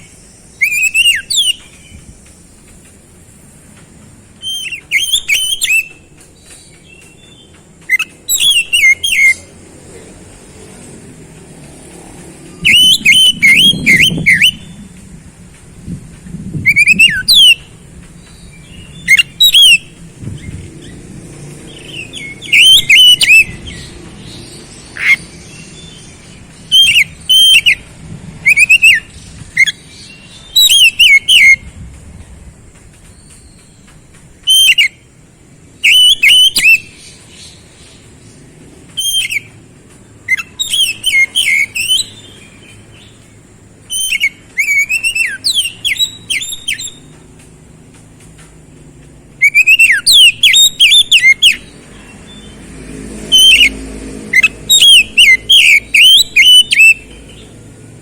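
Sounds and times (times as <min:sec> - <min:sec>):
bird whistling song: 0:00.0 - 0:03.5, 0:04.3 - 0:09.6, 0:12.4 - 0:15.0, 0:16.2 - 0:32.4, 0:33.0 - 0:35.1, 0:35.7 - 0:39.6, 0:40.2 - 0:47.3, 0:49.4 - 0:52.6, 0:53.2 - 0:57.6.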